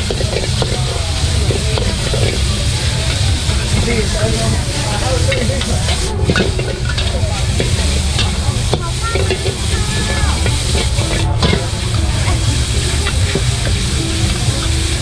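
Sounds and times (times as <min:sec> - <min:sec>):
stirring scraping clicks: 0:00.0 - 0:09.7
food sizzling and frying: 0:00.0 - 0:15.0
steady low rumble: 0:00.0 - 0:15.0.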